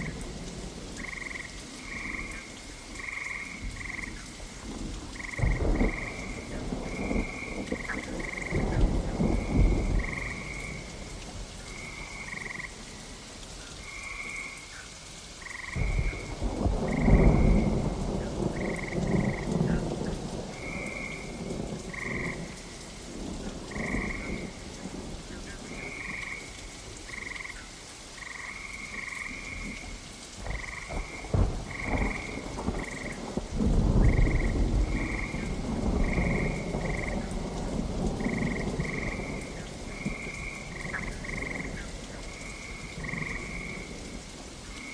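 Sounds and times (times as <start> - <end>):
frogs croaking: 0.0 - 44.9
steady rain: 0.0 - 44.9
rolls of thunder: 4.8 - 11.1, 15.7 - 22.6, 23.2 - 24.9, 29.5 - 43.9.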